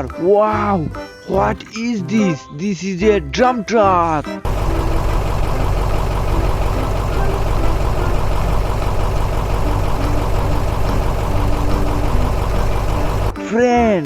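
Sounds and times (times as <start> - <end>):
truck engine idling: 4.5 - 13.4.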